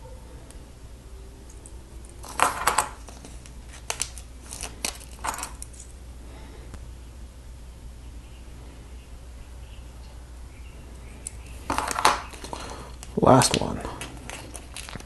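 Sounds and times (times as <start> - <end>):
sticker sheet crinkling: 2.2 - 5.6, 11.7 - 15.0
plastic parts clicking: 11.2 - 15.0.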